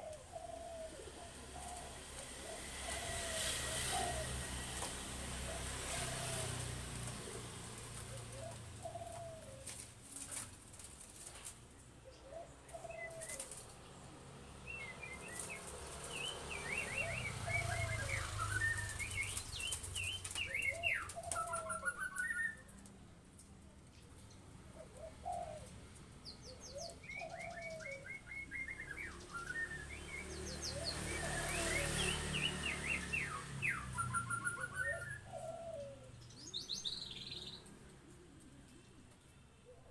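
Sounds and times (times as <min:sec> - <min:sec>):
small bird chirping high: 0:14.7 - 0:22.8, 0:26.3 - 0:35.3.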